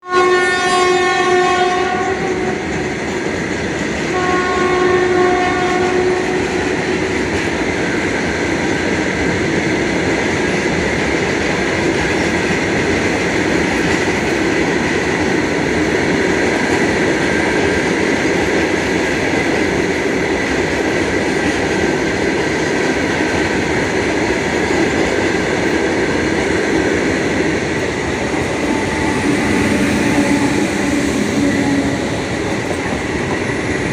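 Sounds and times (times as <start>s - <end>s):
train horn blasts: 0.0s - 2.9s, 4.0s - 6.8s, 28.2s - 32.4s
train rumbling on rails: 0.0s - 33.9s.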